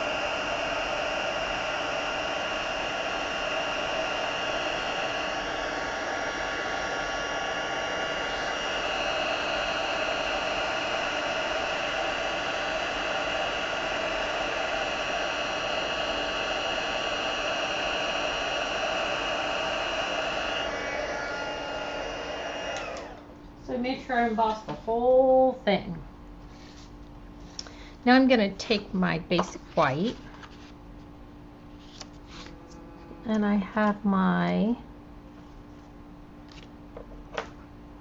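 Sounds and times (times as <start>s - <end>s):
heat gun blowing: 0.0s - 23.3s.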